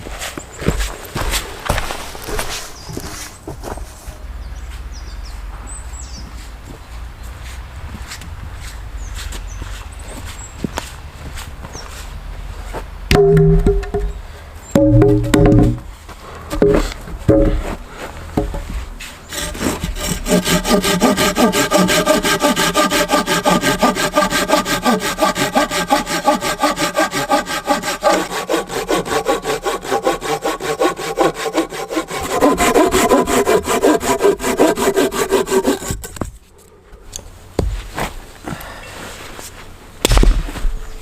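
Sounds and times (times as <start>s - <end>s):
hand saw cutting wood: 18.4s - 36.3s.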